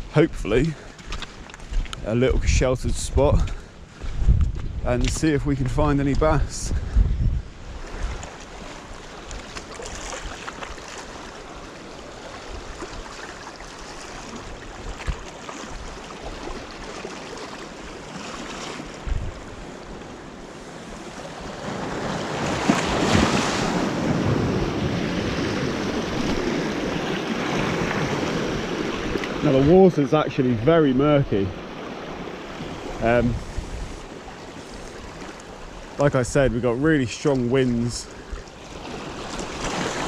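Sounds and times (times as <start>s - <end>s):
wind buffeting microphone: 0.0s - 10.4s, 18.9s - 20.1s, 21.1s - 37.1s
sea waves washing on shore: 0.0s - 40.0s.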